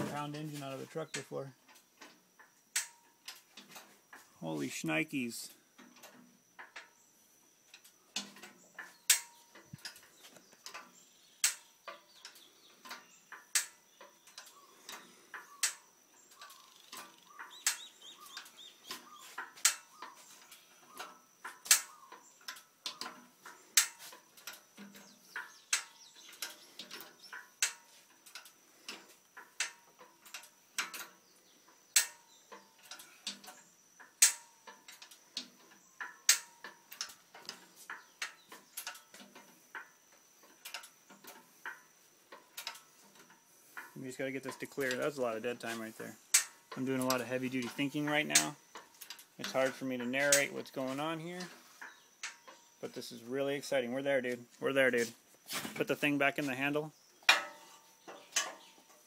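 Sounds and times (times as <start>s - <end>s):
hydraulic hoist pump clicks: 7.7s - 31.2s, 31.9s - 45.0s, 46.3s - 52.6s.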